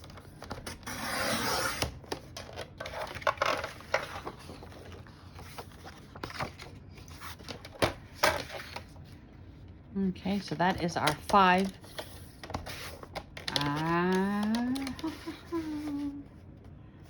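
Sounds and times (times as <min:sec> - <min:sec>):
paper rustling: 0:00.0 - 0:09.2, 0:10.3 - 0:16.2
cardstock cutting scrape: 0:00.7 - 0:02.0.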